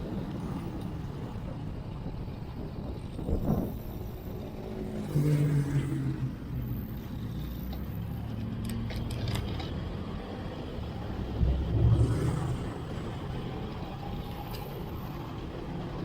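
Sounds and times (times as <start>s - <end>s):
traffic rumble: 0.0s - 16.0s
wind noise: 1.4s - 4.5s, 11.0s - 14.7s
vehicle passing close: 11.0s - 14.2s.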